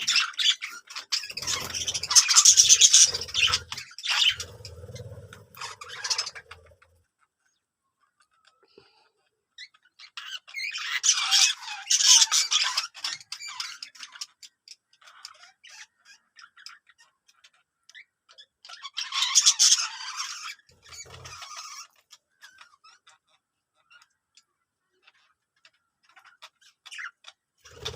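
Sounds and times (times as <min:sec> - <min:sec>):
birds squawking: 0:00.0 - 0:07.0, 0:18.8 - 0:23.1, 0:26.2 - 0:27.9.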